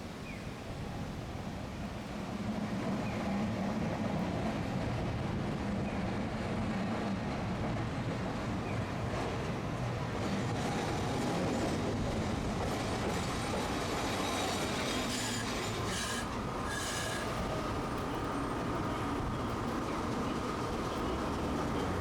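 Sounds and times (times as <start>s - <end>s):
streetcar wheel and rail rumble: 0.0s - 22.0s
streetcar wheels squealing: 12.6s - 22.0s.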